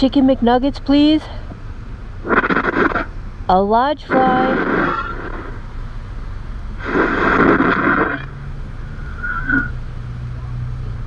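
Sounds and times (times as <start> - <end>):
noisy burst: 2.1 - 10.1.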